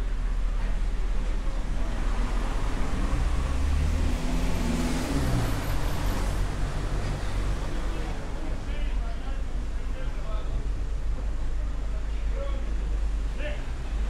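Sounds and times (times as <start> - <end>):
car driving past: 1.7 - 8.4.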